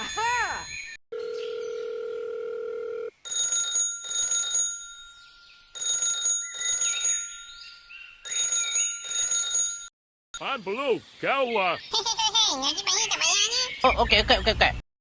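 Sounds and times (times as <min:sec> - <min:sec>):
telephone bell ringing: 0:01.1 - 0:05.1, 0:05.8 - 0:07.3, 0:08.3 - 0:09.9.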